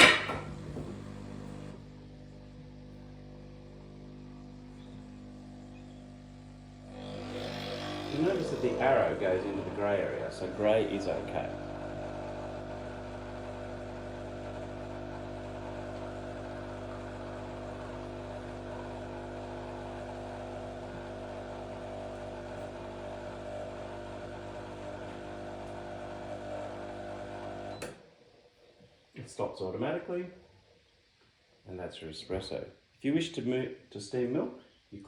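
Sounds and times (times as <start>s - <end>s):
espresso machine pump humming: 0.0s - 28.0s.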